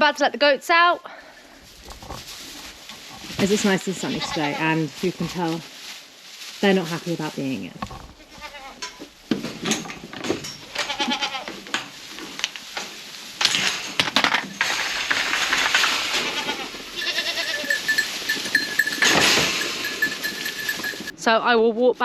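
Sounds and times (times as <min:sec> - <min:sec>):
goats bleating: 0:03.9 - 0:05.0, 0:08.1 - 0:09.0, 0:10.6 - 0:11.6, 0:15.8 - 0:18.4
clatter of knocks and rattles: 0:08.8 - 0:21.1.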